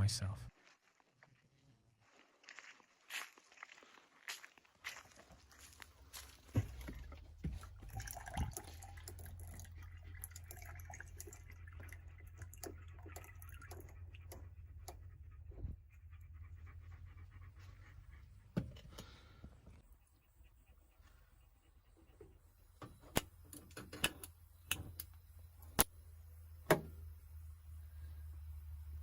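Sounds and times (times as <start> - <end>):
dog panting: 14.4 - 18.5.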